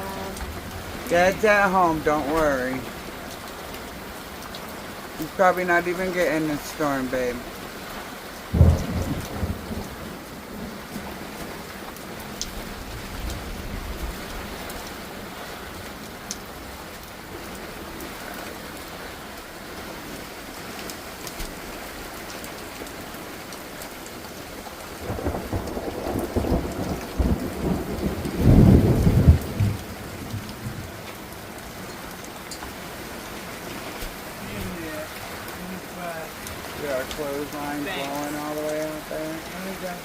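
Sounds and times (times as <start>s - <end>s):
thunder rumbling: 0.0s - 3.1s, 8.5s - 11.6s, 25.0s - 31.6s
heavy rain falling: 0.0s - 40.0s.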